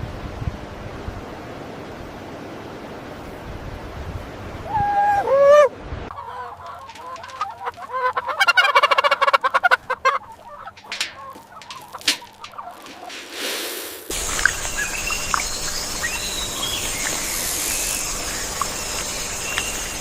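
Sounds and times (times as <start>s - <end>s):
fowl calling: 4.6s - 13.4s, 14.1s - 20.0s
steady hiss: 10.3s - 20.0s.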